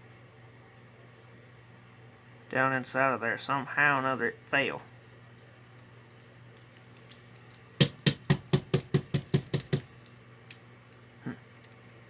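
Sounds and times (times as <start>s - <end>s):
knocking on small metal motor: 7.8s - 10.1s.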